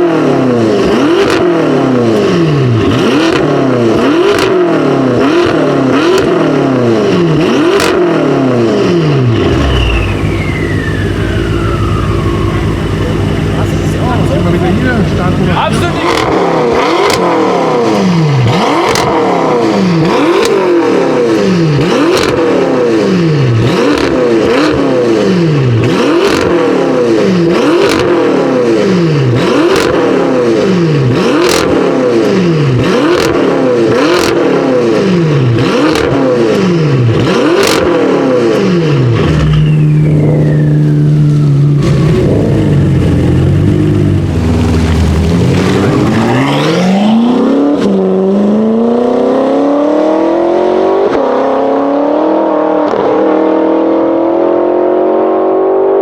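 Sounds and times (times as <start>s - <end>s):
car engine revving: 0.0s - 56.0s
exhaust cracks: 9.4s - 21.4s, 39.2s - 48.0s
high falling turbo whistle: 9.7s - 13.7s, 39.5s - 42.0s.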